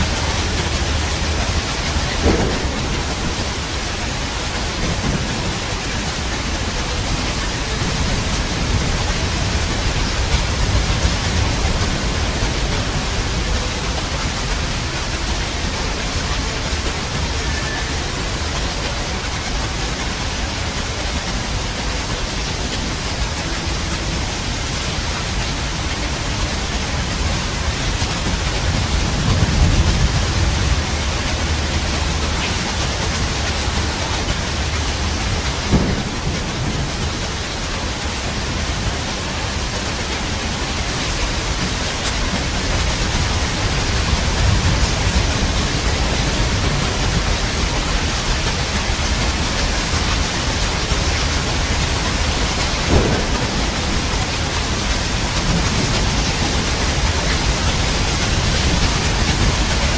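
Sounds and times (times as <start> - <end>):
heavy rain: 0.0 - 59.9
rolling thunder: 0.0 - 59.9.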